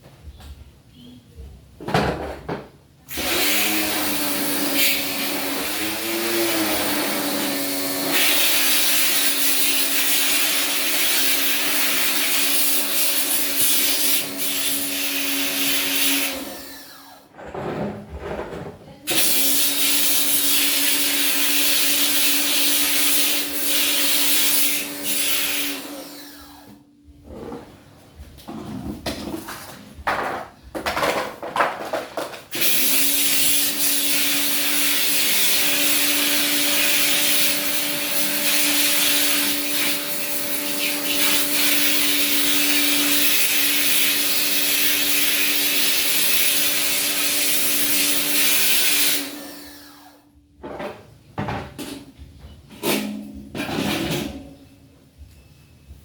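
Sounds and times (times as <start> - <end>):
scraping and knocking from handling: 17.3 - 19.0.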